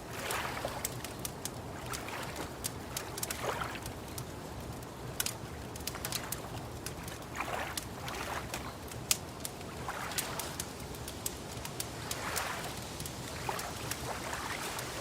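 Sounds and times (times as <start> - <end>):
lake water lapping: 0.0 - 15.0
wood fire crackling and popping: 0.0 - 15.0.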